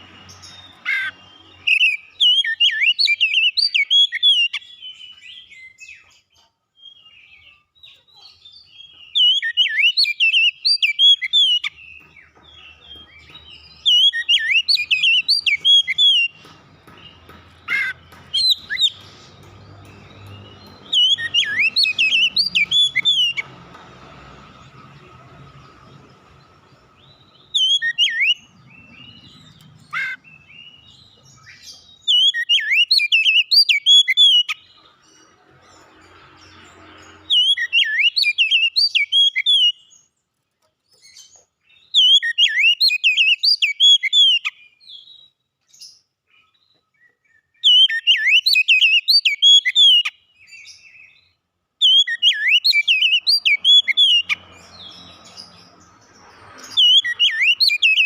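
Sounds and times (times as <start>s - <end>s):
bird singing whistled phrases: 8.5s - 11.7s, 13.8s - 16.3s, 20.8s - 23.4s, 27.4s - 28.5s, 31.4s - 34.6s, 41.8s - 45.1s, 47.0s - 51.2s, 51.8s - 54.4s, 56.8s - 58.0s.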